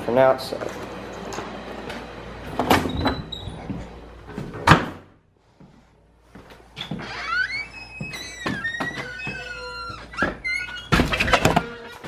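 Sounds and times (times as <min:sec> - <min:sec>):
air conditioner hum: 0:00.0 - 0:12.0
door opening: 0:00.6 - 0:05.0, 0:06.8 - 0:12.0.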